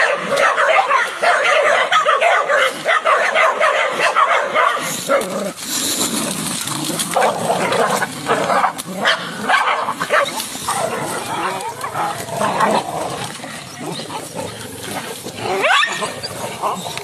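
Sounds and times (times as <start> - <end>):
dog barking and yipping: 0.0 - 5.3, 7.2 - 12.0, 15.5 - 17.0.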